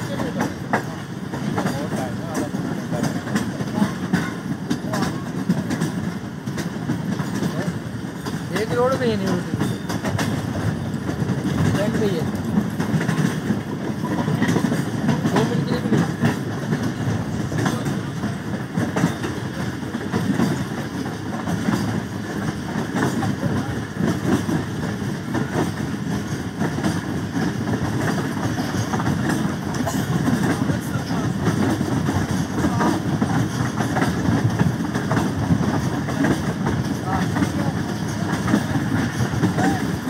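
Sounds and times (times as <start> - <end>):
passenger train rumbling and rattling: 0.0 - 40.0.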